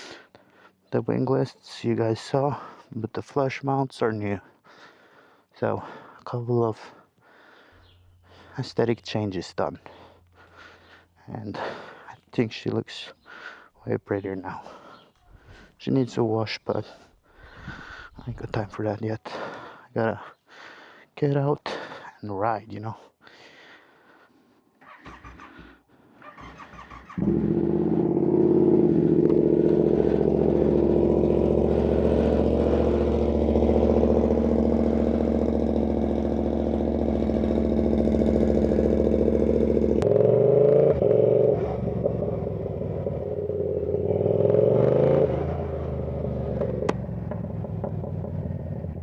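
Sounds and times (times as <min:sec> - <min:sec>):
motorcycle engine starting and revving: 0:24.8 - 0:49.0.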